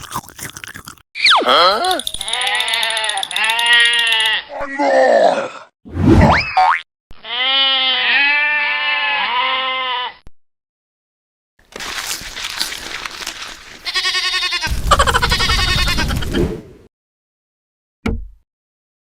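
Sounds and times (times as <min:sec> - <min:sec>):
farm animal bleating: 0:02.2 - 0:04.6, 0:07.2 - 0:10.3, 0:13.8 - 0:16.3.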